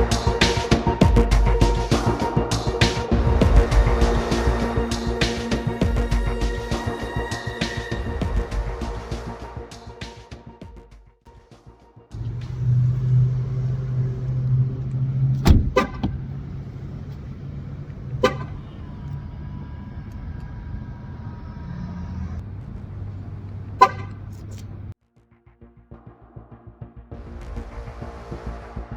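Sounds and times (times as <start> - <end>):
car horn chirps: 15.3 - 16.4, 18.1 - 19.4, 23.3 - 24.9.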